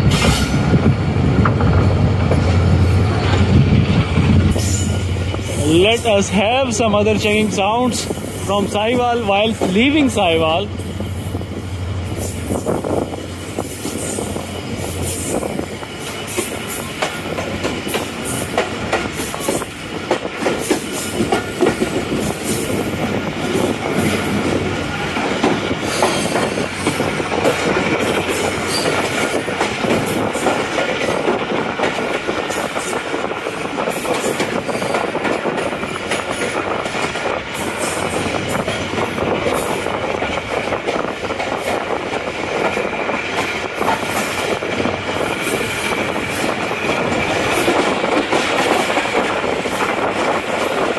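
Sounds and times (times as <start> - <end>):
train rail noise: 0.0 - 50.9
wheels clacking over rail joints: 16.0 - 50.9.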